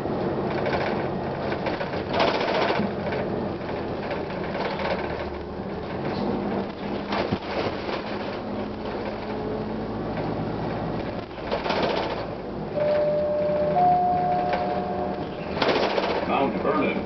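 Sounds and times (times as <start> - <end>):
bus engine drone: 0.0 - 17.0
steady tones: 12.8 - 17.0.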